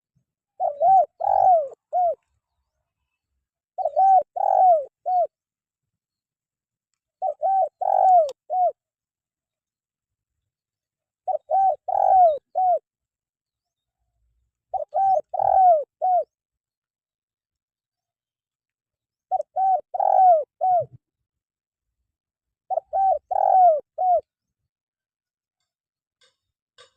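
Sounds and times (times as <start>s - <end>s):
dove cooing: 0.6s - 2.2s, 3.8s - 5.3s, 7.2s - 8.8s, 11.2s - 12.9s, 14.7s - 16.4s, 19.3s - 21.0s, 22.7s - 24.3s.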